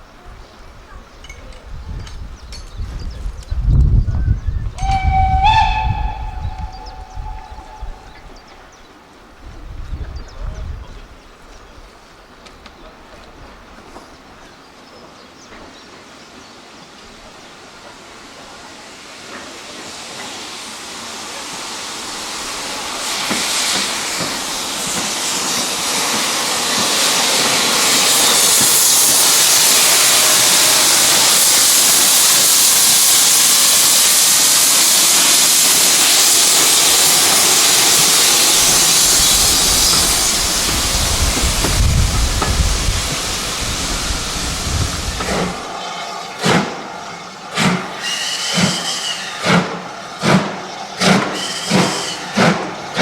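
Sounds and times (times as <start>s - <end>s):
steam locomotive hissing: 4.8s - 9.2s, 16.0s - 53.0s
train wheels clacking over rail joints: 23.0s - 33.2s, 45.1s - 53.0s.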